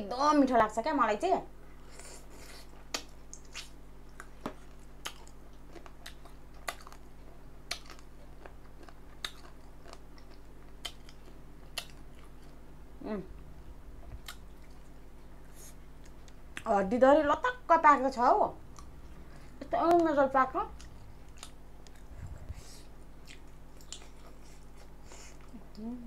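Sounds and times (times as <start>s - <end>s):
quiet chewing: 1.7s - 12.6s, 14.0s - 16.7s, 18.7s - 20.0s, 20.7s - 26.0s.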